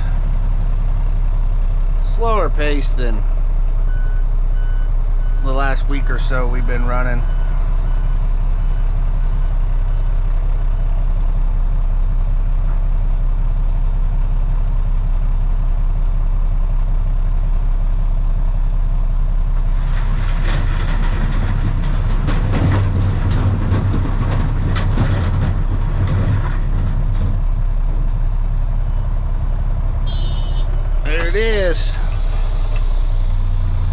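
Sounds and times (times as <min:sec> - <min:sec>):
diesel truck engine idling: 0:00.0 - 0:19.9, 0:25.6 - 0:33.9
rocks clattering into dump bed: 0:19.7 - 0:27.6.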